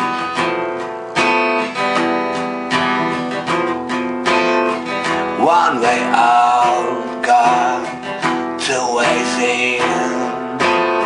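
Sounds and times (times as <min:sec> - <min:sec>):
strummed acoustic guitar: 0:00.0 - 0:11.0
person singing: 0:05.2 - 0:11.0.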